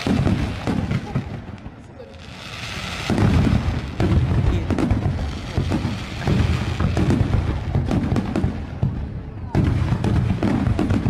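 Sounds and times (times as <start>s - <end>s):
firework shells launching hiss: 0.0s - 8.8s
fireworks booming and crackling: 0.0s - 11.0s.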